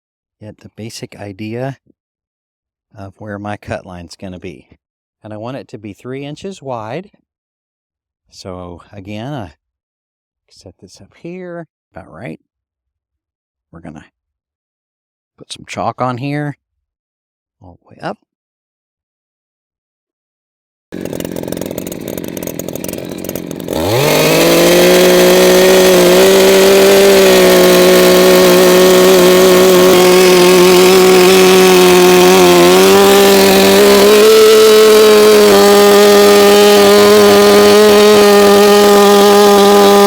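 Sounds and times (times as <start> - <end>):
chainsaw cutting log: 20.9 - 40.0.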